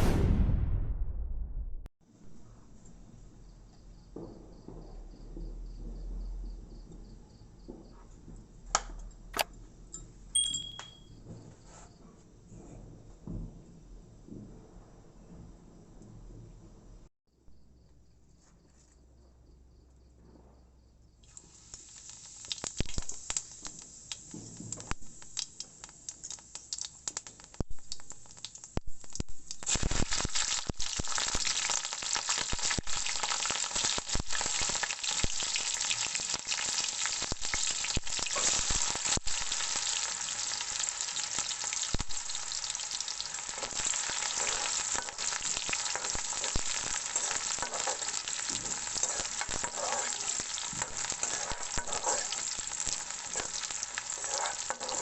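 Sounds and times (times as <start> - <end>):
potatoes sizzling in oil: 21.2 - 55.0
spatula stirring clicks: 43.6 - 55.0.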